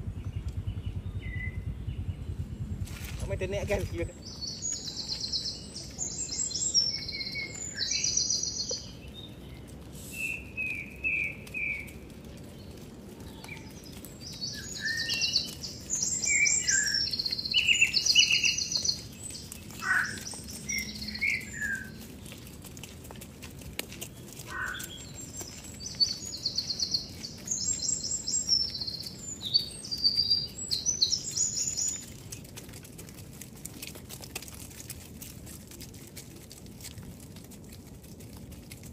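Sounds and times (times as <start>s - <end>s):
birds singing trilled phrases: 0.0s - 11.9s, 13.4s - 22.0s, 24.5s - 32.1s
faint outdoor background: 0.0s - 38.9s.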